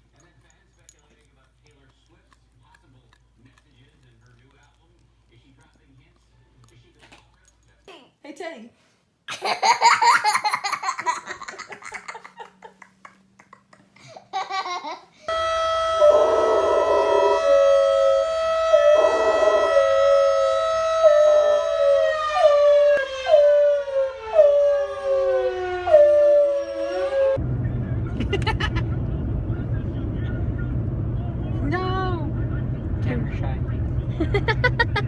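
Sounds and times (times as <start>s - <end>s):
siren-like wail: 15.3s - 27.4s
dog howling: 18.7s - 27.4s.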